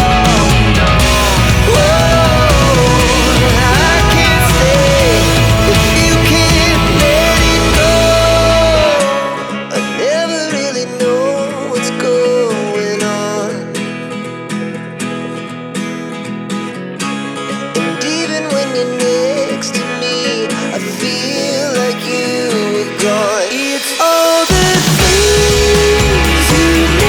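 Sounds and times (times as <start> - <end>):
background music with steady beat: 0.0 - 9.0, 23.7 - 27.0.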